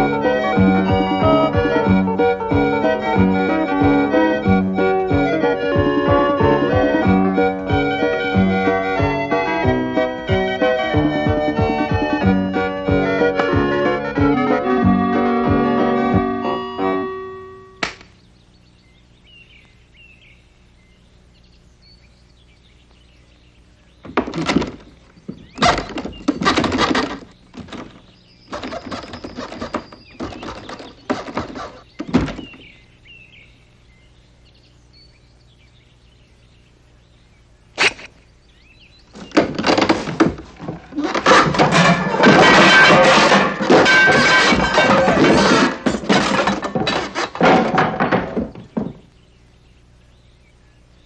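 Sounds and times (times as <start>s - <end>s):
faint bird chirps: 17.6s - 24.2s, 48.6s - 51.0s
clattering: 24.0s - 32.6s, 39.2s - 49.0s
knocks scrapes and thuds: 24.0s - 32.7s, 39.1s - 49.1s
sharp thunk: 29.6s - 32.6s.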